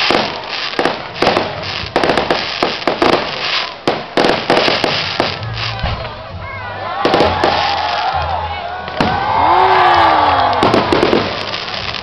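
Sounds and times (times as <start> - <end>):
fireworks hissing: 0.0 - 6.2, 10.6 - 12.0
fireworks bangs and crackles: 0.0 - 6.3, 7.0 - 12.0.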